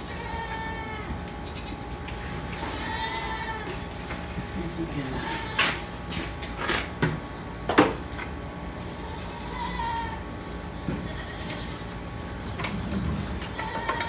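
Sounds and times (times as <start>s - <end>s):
faint animal bleat: 2.7s - 3.8s, 5.1s - 5.8s, 9.0s - 10.2s, 11.1s - 12.0s.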